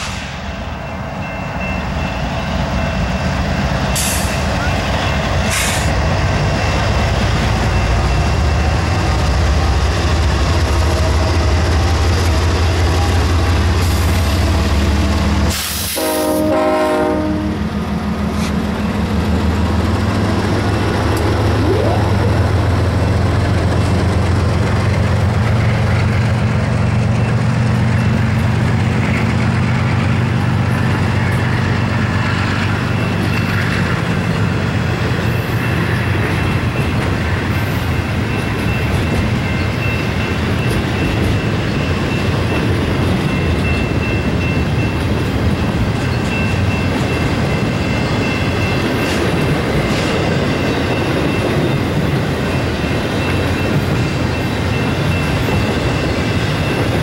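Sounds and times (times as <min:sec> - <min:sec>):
freight cars rolling on rails: 0:00.0 - 0:16.5, 0:17.6 - 0:57.0
diesel locomotive rumbling: 0:00.0 - 0:57.0
short pitched tone: 0:21.3 - 0:22.7.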